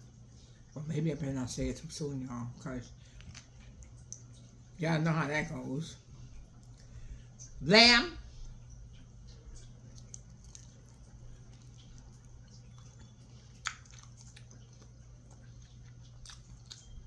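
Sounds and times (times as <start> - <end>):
low hum: 0.0 - 17.0
person chewing wetly: 2.8 - 4.8, 6.0 - 7.6, 8.3 - 17.0.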